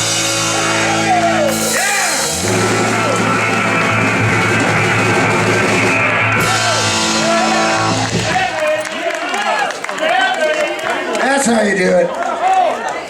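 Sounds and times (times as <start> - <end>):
cymbals crashing: 0.0 - 8.6
rock band playing: 0.0 - 8.9.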